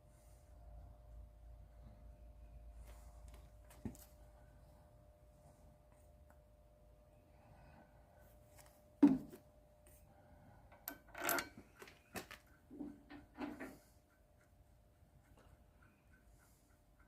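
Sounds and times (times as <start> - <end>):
tools clunking and scraping: 10.7 - 14.0.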